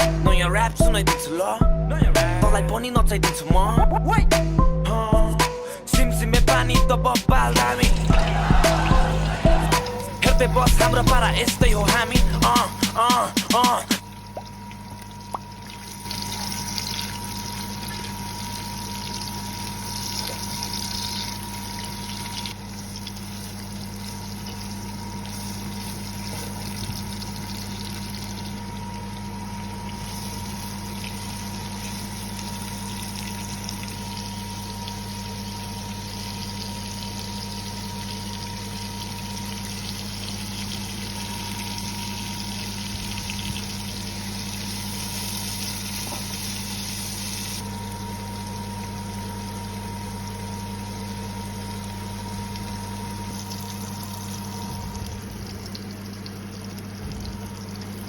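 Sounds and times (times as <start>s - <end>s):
constant low hum: 14.0s - 46.6s, 47.6s - 58.0s
vegetables sizzling in a pan: 29.9s - 47.8s.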